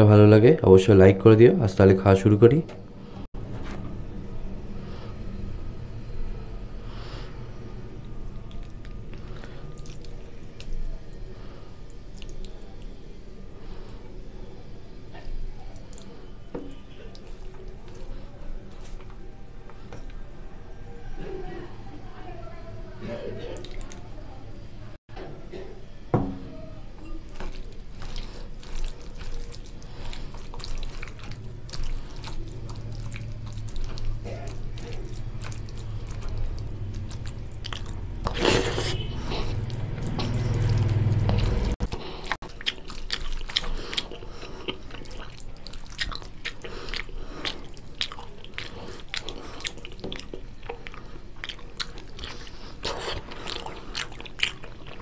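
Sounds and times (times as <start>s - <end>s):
wet chewing and smacking: 8.0s - 14.0s, 15.1s - 19.2s, 27.0s - 55.0s.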